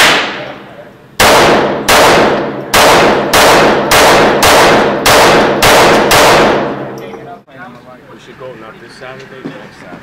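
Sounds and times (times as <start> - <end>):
handgun shots echoing: 0.0 - 0.6, 1.2 - 7.0.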